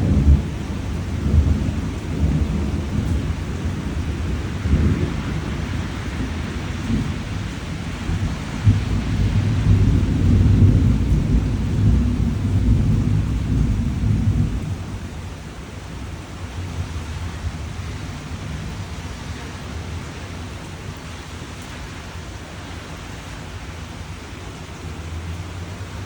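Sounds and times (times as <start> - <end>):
thunder rolling: 0.0 - 15.3
steady rain: 0.0 - 26.0.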